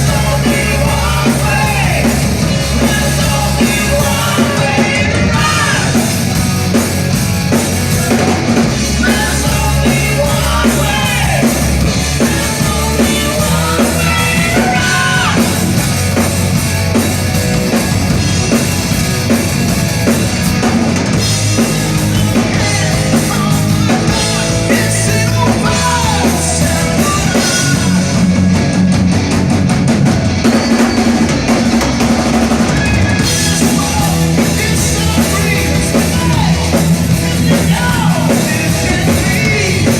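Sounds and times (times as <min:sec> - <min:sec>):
person singing: 0:00.0 - 0:06.2, 0:07.8 - 0:15.8, 0:21.6 - 0:28.4, 0:32.7 - 0:39.9
drum kit beat: 0:00.0 - 0:39.9
live rock band: 0:00.0 - 0:39.9.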